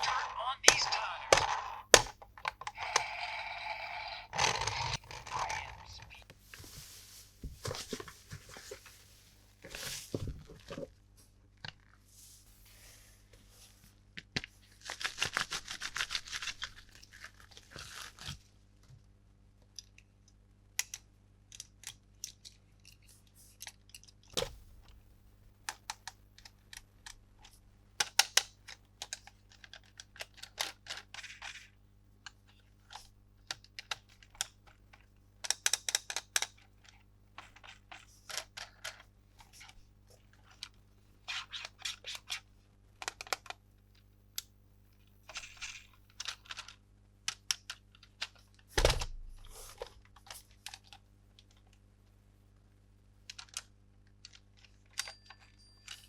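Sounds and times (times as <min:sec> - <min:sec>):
plastic pieces clicking: 0:00.0 - 0:06.2
packaging tearing and rustling: 0:14.8 - 0:18.4.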